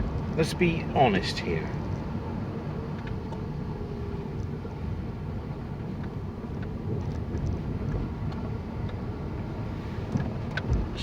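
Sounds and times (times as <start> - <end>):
car engine rumble: 0.0 - 11.0
road noise inside car: 0.0 - 11.0
faint light ticks: 2.9 - 3.5, 4.3 - 4.8, 6.0 - 9.5.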